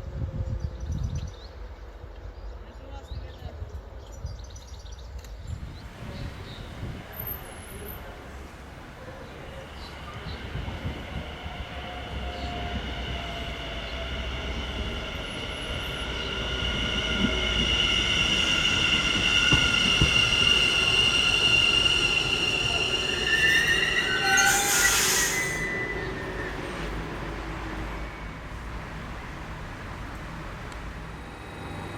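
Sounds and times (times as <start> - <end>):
electric train squealing: 9.2 - 29.0, 31.0 - 31.9.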